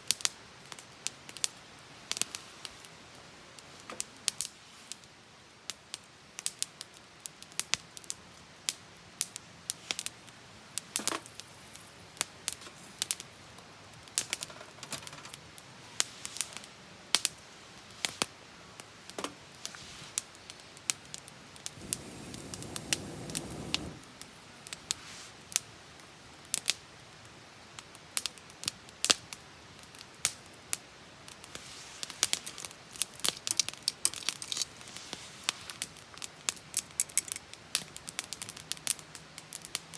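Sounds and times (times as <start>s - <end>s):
campfire crackling and popping: 5.7s - 14.6s, 16.3s - 39.9s
soft rushing noise: 21.8s - 24.2s.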